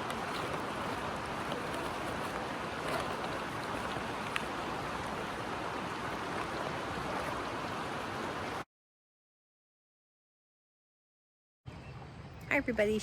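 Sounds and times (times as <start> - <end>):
creek rushing: 0.0 - 8.6.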